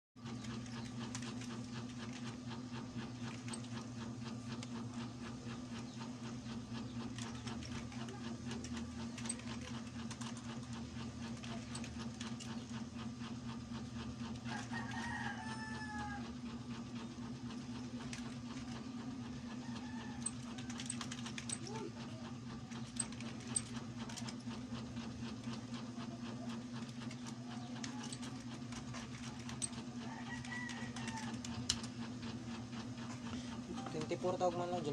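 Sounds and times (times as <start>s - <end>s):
mechanical hum with clicking: 0.2s - 34.9s
rooster crowing: 14.4s - 16.4s, 19.5s - 21.0s, 30.0s - 31.6s.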